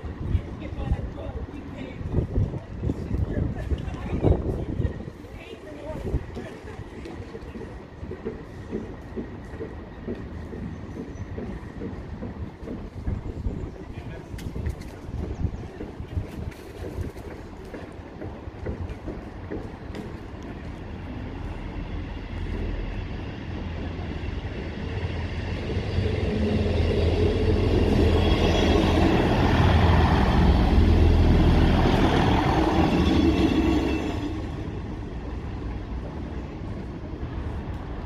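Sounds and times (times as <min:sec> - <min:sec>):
rail noise: 0:00.0 - 0:38.0
diesel train engine drone: 0:17.4 - 0:38.0.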